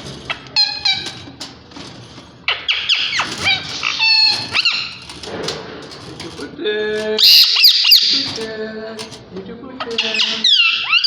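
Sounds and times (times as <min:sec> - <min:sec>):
parakeets calling harshly: 0:10.0 - 0:11.0.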